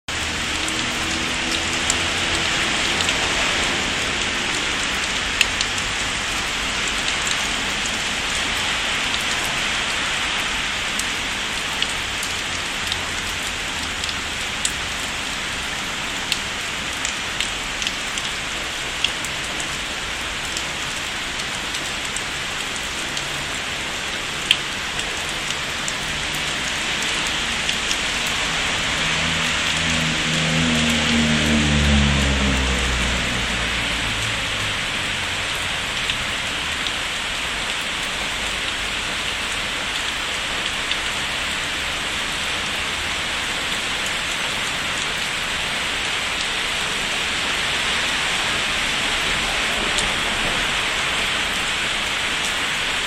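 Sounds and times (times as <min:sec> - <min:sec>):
rain falling: 0:00.1 - 0:53.0.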